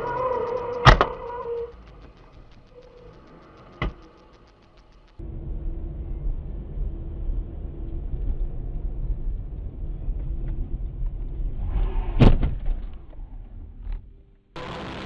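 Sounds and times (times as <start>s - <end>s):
car road and engine rumble: 5.1s - 11.6s.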